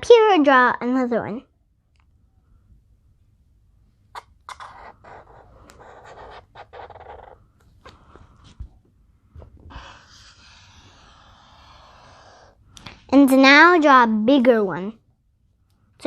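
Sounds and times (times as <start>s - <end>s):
drawing strokes on paper: 4.2s - 13.2s.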